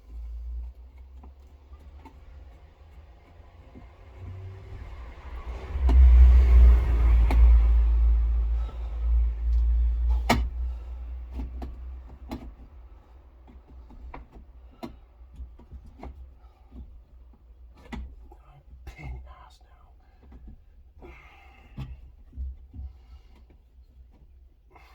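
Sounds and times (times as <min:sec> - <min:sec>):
heavy low rumble: 0:02.4 - 0:12.1.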